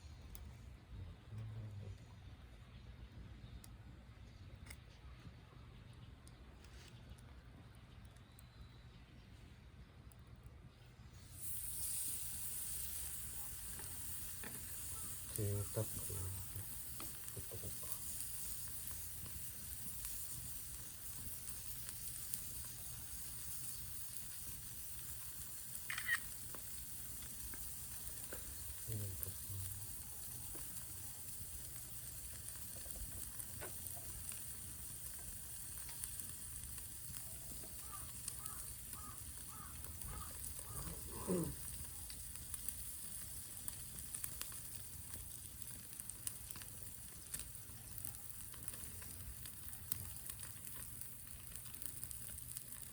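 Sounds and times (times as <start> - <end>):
meat sizzling on griddle: 11.2 - 52.9.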